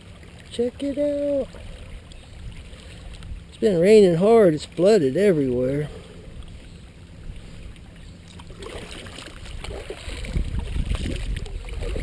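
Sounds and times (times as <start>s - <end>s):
wind rumble on microphone: 1.4s - 3.7s, 5.6s - 12.0s.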